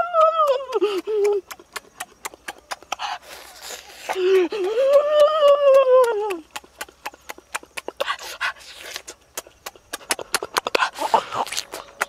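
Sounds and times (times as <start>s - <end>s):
lip-smacking and chewing: 0.2s - 12.0s
breathing: 2.9s - 4.7s.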